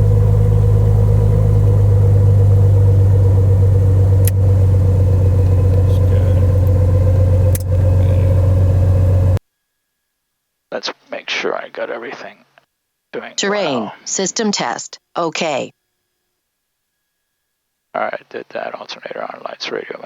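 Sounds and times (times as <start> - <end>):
aircraft engine idling: 0.0 - 9.4
sharp switch clicks: 4.2 - 4.4.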